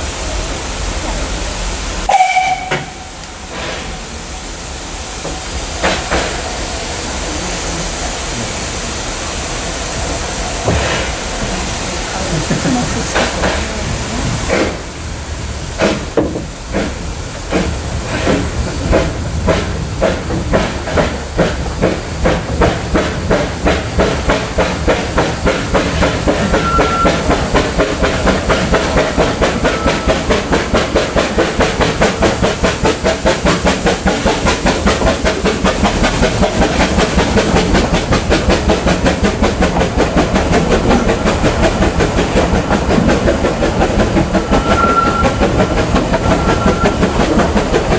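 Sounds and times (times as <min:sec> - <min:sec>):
steam hiss: 0:00.0 - 0:47.9
steam locomotive chuffing: 0:00.0 - 0:47.9.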